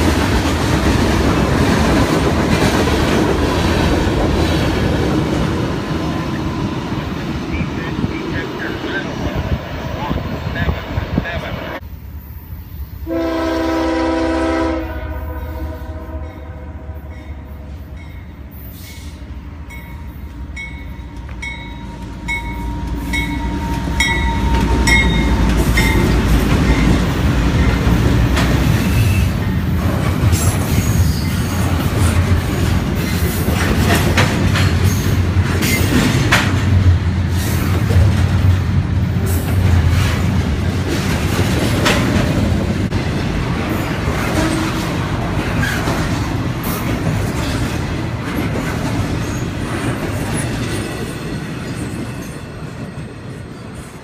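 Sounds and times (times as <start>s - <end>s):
diesel locomotive passing: 0.0s - 54.0s
train horn blast: 13.0s - 17.4s.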